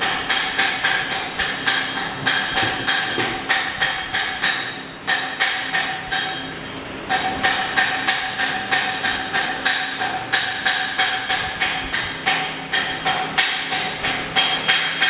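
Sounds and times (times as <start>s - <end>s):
hammer striking steel: 0.0s - 15.0s.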